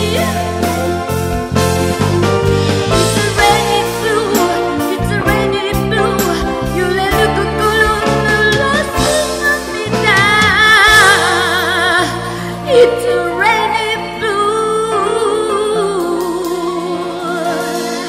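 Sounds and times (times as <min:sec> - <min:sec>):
live band playing slow ballad: 0:00.0 - 0:18.0.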